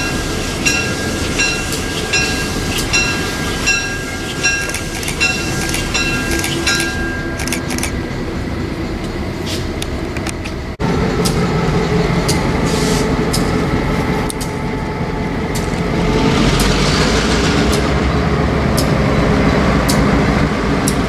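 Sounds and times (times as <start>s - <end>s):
train rumbling past: 0.0s - 21.0s
wheels clicking over rail joints: 4.0s - 8.1s.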